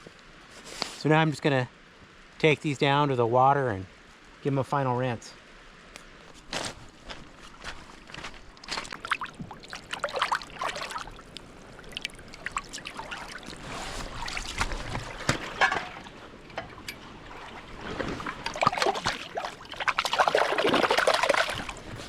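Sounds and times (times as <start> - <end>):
water splashing and trickling: 6.3 - 22.0.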